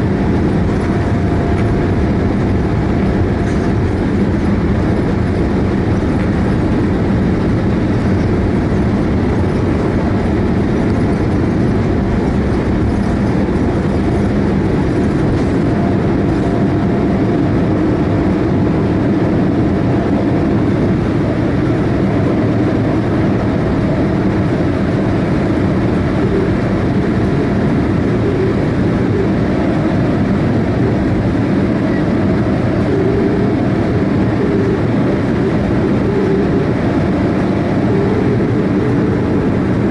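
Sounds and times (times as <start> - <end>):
airliner jet engines rumbling: 0.0 - 39.9.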